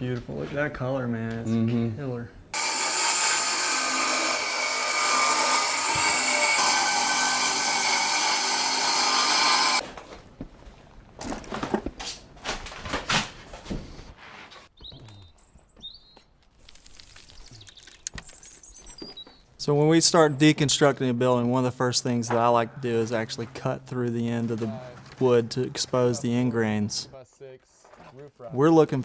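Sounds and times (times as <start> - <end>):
power tool running: 2.6 - 9.8.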